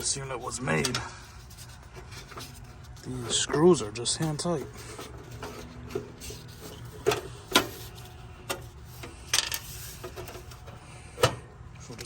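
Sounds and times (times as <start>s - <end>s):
metal rubbing: 0.0s - 11.3s.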